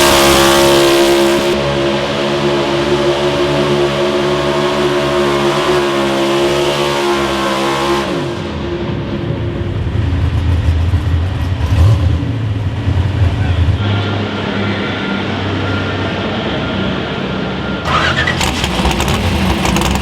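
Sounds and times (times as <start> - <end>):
engine revving high: 0.0 - 8.9, 17.8 - 20.0.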